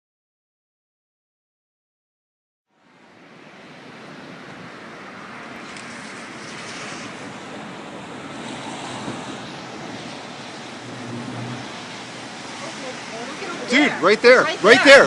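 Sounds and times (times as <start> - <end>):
wind on microphone: 3.2 - 13.6.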